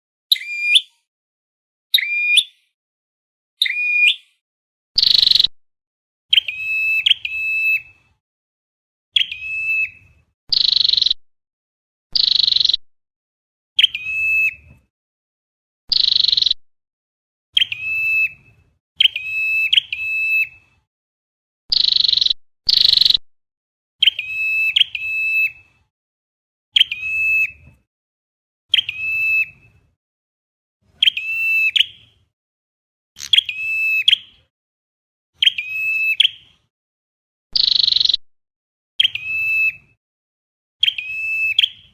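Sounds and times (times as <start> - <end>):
recorded songbird chirps: 0.3 - 1.1, 1.9 - 2.8, 3.6 - 4.4, 5.0 - 5.5, 6.3 - 8.2, 9.1 - 11.2, 12.2 - 12.8, 13.8 - 14.7, 15.9 - 16.6, 17.5 - 20.7, 21.7 - 23.2, 24.0 - 25.8, 26.7 - 27.7, 28.7 - 29.9, 30.9 - 32.3, 33.2 - 34.5, 35.4 - 36.7, 37.6 - 38.2, 39.0 - 40.0, 40.8 - 41.9.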